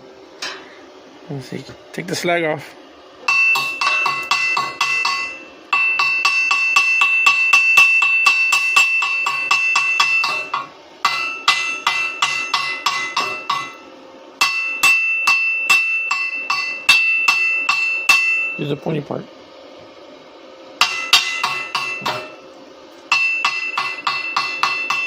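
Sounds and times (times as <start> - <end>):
chipping hammer striking steel: 3.3 - 13.8, 14.4 - 18.6, 20.8 - 22.4, 23.1 - 25.0.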